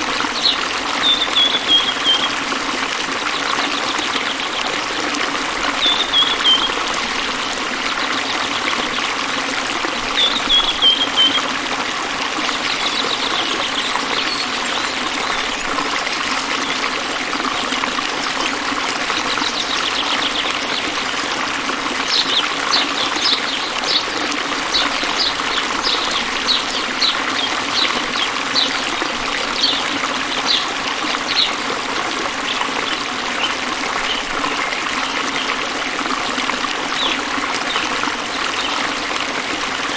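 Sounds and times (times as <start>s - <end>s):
stream trickling and splashing: 0.0s - 39.9s
short high chirps: 13.0s - 15.7s.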